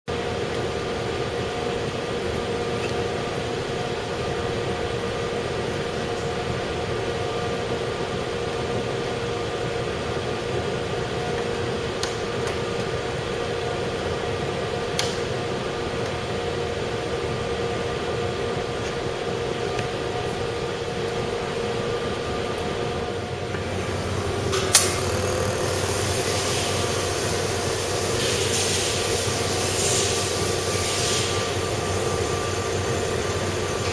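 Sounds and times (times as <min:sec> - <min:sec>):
air compressor whirring: 0:10.5 - 0:33.9.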